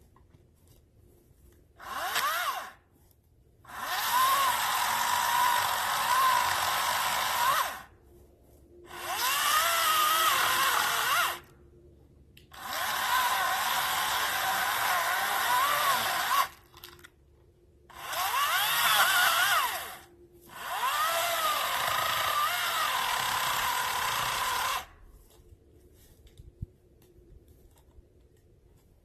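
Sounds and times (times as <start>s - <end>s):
electric chainsaw cutting wood: 1.8s - 2.8s, 3.7s - 7.9s, 8.9s - 11.5s, 12.5s - 16.6s, 17.9s - 24.9s.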